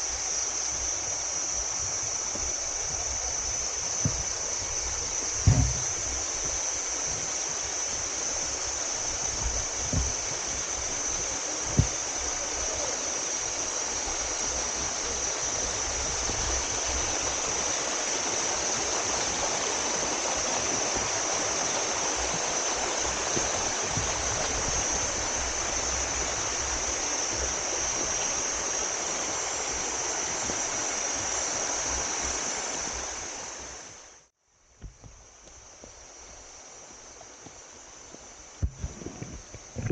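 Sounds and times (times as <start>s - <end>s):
waterfall rushing over rock: 0.0s - 34.2s
low thumps: 5.3s - 6.6s.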